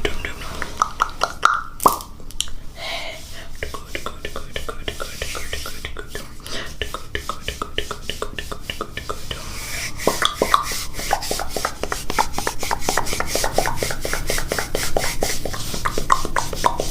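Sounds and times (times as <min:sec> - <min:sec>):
breathy whisper: 0:00.0 - 0:00.9, 0:02.8 - 0:16.2
wet mouth clicks and smacks: 0:00.6 - 0:02.6.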